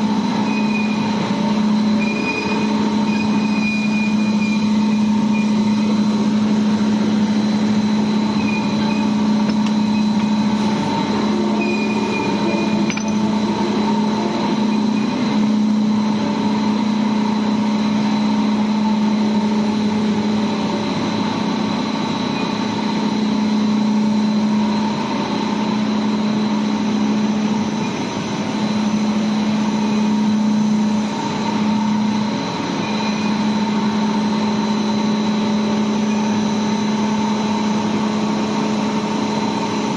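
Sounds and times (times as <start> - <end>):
boiler plant machinery hum: 0.0 - 39.9.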